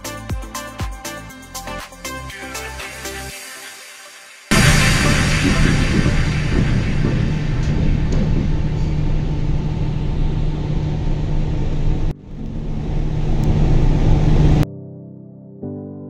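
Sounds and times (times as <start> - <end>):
train rumbling inside carriage: 4.5 - 14.6.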